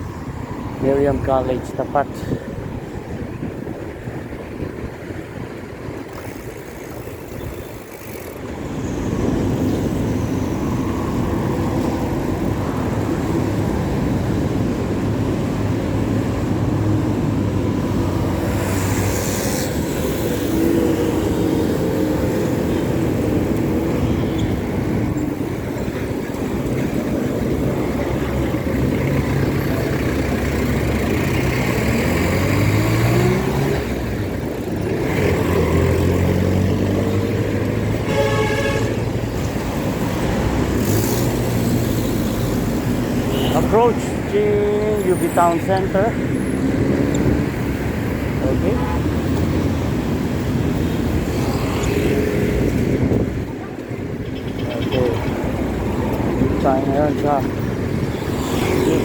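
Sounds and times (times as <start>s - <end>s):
vehicle engines passing: 0.0s - 59.0s.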